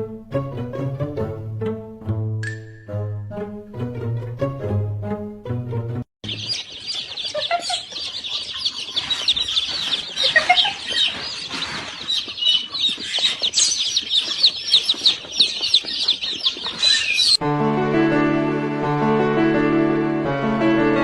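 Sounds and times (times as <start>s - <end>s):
birds chirping and peeping: 6.2s - 17.4s.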